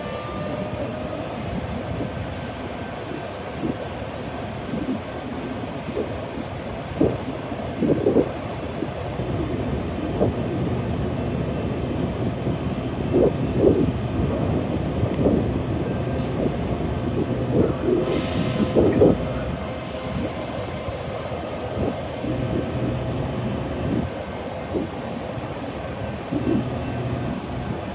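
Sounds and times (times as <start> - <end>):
train clunks: 0.0 - 4.9, 16.1 - 25.8
train wheels rumbling on rail: 0.0 - 27.9
brief hiss: 18.0 - 24.0.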